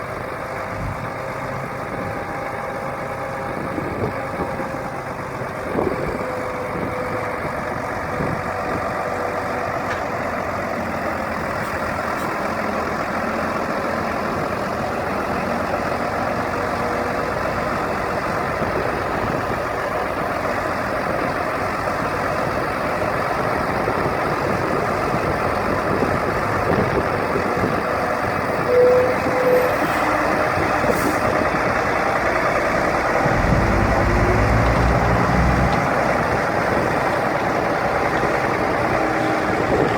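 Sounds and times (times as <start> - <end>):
dump truck diesel engine running: 0.0 - 39.9.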